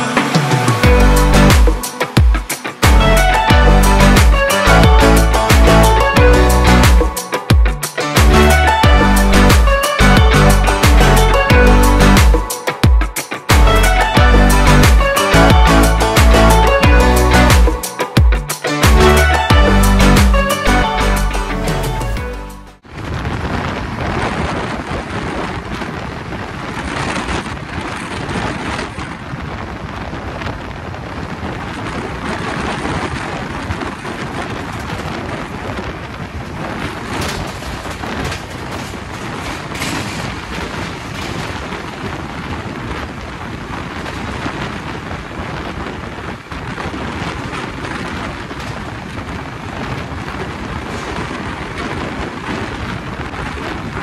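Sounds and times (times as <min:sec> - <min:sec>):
passenger train rumbling past: 0:22.9 - 0:54.0
sharp rattles: 0:36.4 - 0:42.1.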